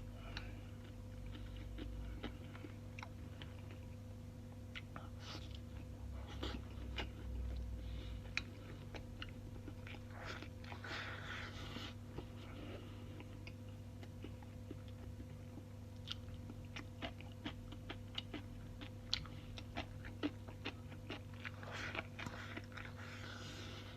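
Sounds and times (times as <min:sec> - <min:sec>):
steady low hum: 0:00.0 - 0:23.9
person chewing wetly: 0:00.2 - 0:04.1, 0:04.7 - 0:23.9.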